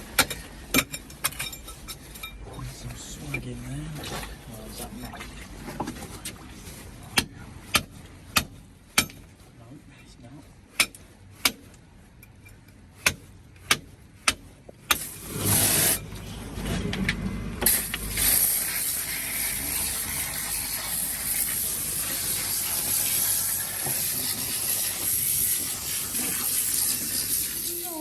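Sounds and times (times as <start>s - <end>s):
loud rushing hiss: 15.0s - 16.0s, 17.6s - 28.0s.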